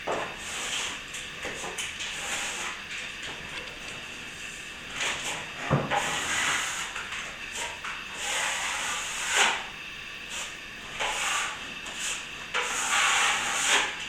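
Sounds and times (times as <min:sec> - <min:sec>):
trowel scraping plaster: 0:00.3 - 0:02.8, 0:04.9 - 0:09.7, 0:10.3 - 0:14.0.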